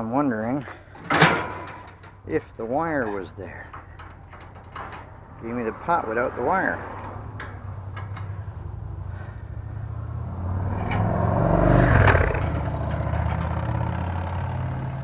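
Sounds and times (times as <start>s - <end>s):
motor vehicle rumbling: 0.0s - 15.0s
clatter: 3.0s - 5.4s, 10.7s - 11.3s, 11.9s - 15.0s.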